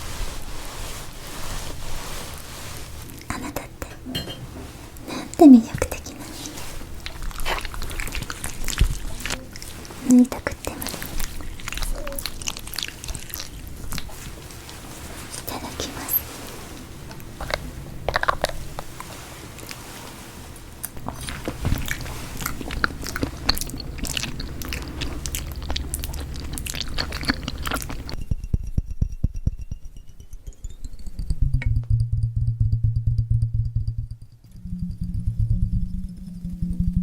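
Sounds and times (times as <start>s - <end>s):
mouth chewing clicks and crackles: 5.7s - 16.2s, 17.1s - 19.8s, 20.8s - 28.2s
loud low pulsing beat: 28.2s - 37.0s
soft sustained notes: 28.2s - 37.0s
upward gliding tone: 29.0s - 37.0s.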